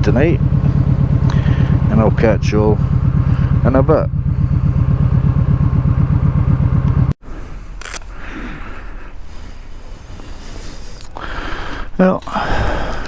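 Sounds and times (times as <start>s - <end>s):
motorcycle engine idling: 0.0s - 7.2s
low rumble: 0.0s - 8.0s.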